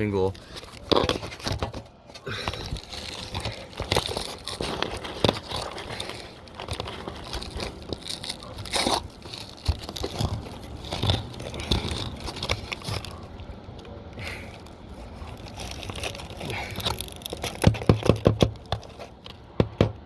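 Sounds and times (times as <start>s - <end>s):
roof shingles crackling and scraping: 0.0s - 20.0s
sharp knocks: 19.6s - 20.0s.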